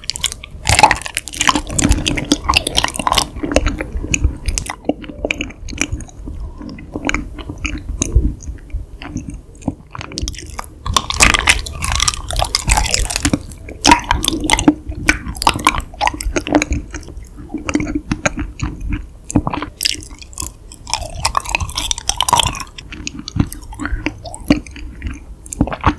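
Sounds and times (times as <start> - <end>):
chewing mouth smacks and clicks: 0.0 - 25.9.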